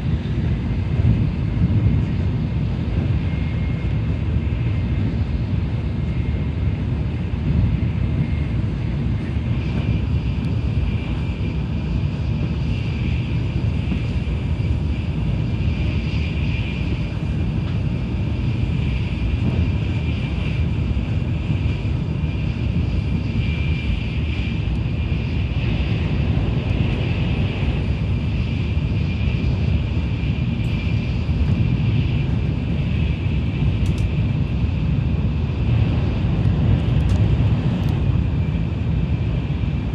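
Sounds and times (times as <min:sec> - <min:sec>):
high-speed train rumble and hiss: 0:00.0 - 0:39.9.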